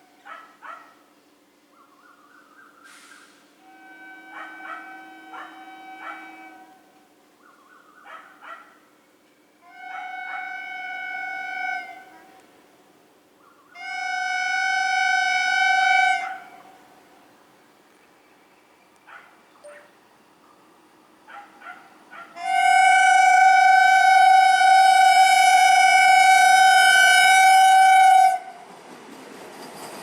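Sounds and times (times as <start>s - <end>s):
train air horn blasts: 2.9s - 7.2s, 9.6s - 12.7s, 13.8s - 17.3s, 22.1s - 28.7s.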